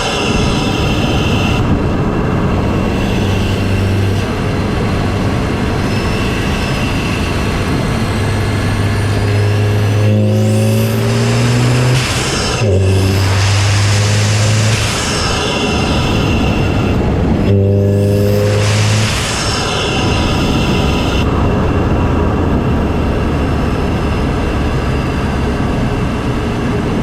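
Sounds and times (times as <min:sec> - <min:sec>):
car engine and intake noise: 0:00.0 - 0:26.4
turbo spool whistle: 0:02.6 - 0:04.6, 0:05.7 - 0:21.3.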